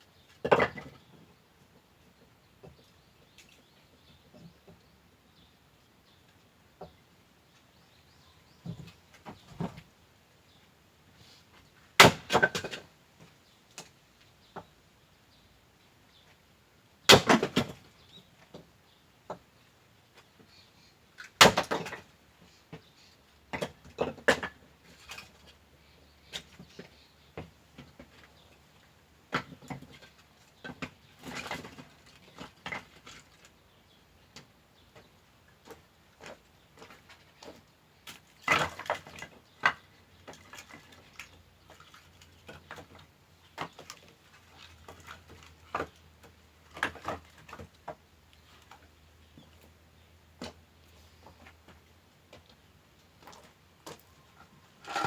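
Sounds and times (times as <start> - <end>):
wood pieces knocking and clattering: 0.3 - 1.3, 12.0 - 12.8, 17.1 - 18.6, 21.2 - 22.1, 23.5 - 25.5, 29.3 - 33.6, 34.3 - 49.6, 53.2 - 55.0
axe chopping firewood: 12.0 - 12.8, 17.1 - 17.8, 21.4 - 22.1.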